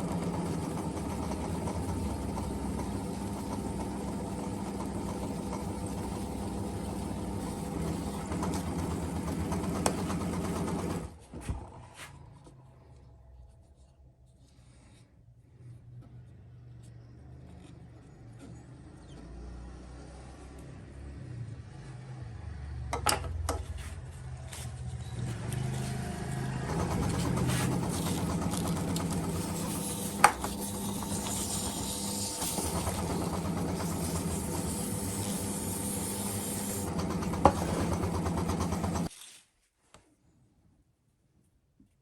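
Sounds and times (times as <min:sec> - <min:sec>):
small motor running: 0:25.2 - 0:39.1.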